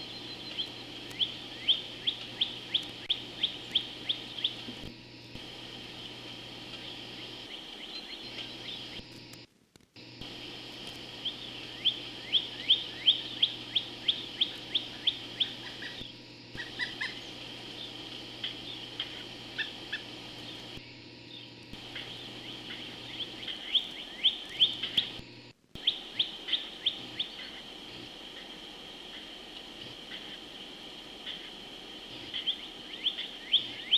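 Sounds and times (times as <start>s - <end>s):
woodpecker calling: 0.0s - 4.8s, 6.8s - 9.1s, 11.2s - 20.7s, 21.3s - 25.2s, 25.8s - 27.7s, 32.3s - 33.9s.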